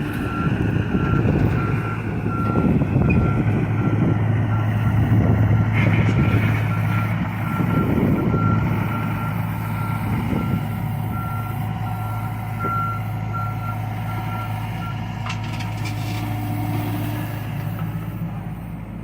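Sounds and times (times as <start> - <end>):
diesel excavator engine running: 0.0 - 19.0
travel alarm beeping: 6.3 - 15.0.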